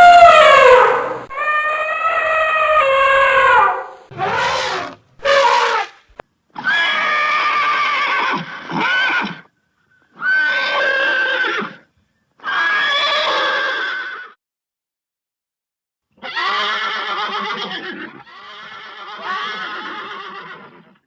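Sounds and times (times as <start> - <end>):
horse neighing: 0.0 - 5.9.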